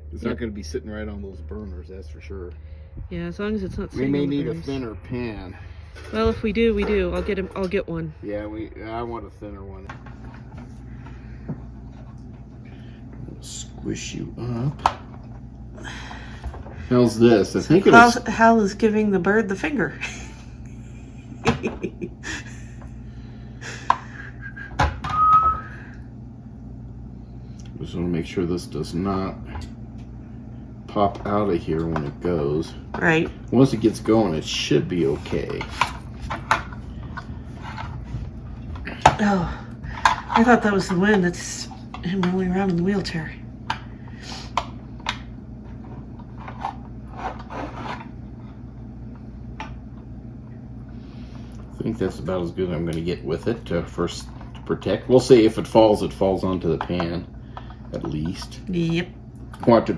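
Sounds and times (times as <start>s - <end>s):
low hum: 0.0s - 59.9s
high whistle-like tone: 24.4s - 26.0s
rubbing and scraping on a spit: 33.6s - 38.9s, 45.6s - 48.6s.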